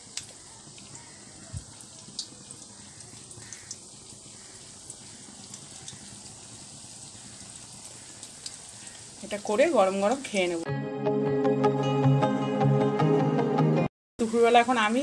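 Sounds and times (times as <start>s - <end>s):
fritters sizzling in hot oil: 0.0s - 10.6s, 14.2s - 15.0s.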